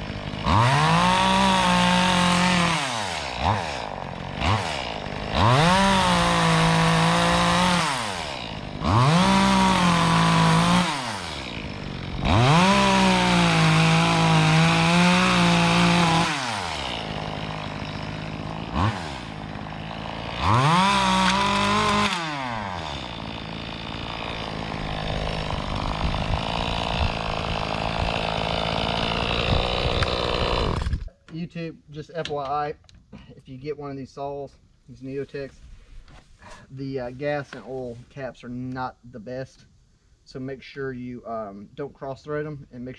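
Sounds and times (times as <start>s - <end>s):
chainsaw cutting and idling: 0.0s - 31.1s.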